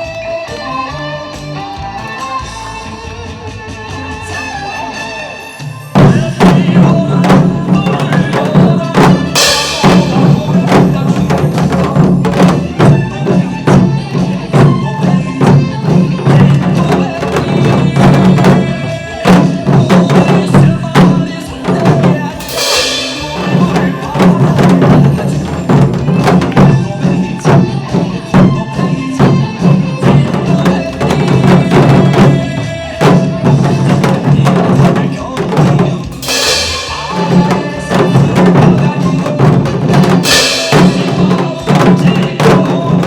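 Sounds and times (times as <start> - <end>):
upbeat backing music: 0.0 - 43.0
cymbal-like crash: 22.4 - 25.2, 36.1 - 38.7, 40.2 - 41.6.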